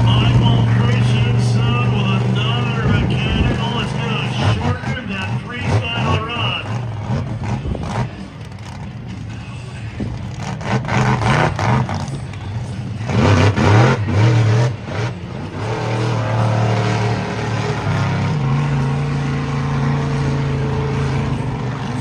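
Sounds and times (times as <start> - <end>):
monster truck engine revving: 0.0 - 9.2, 10.0 - 22.0.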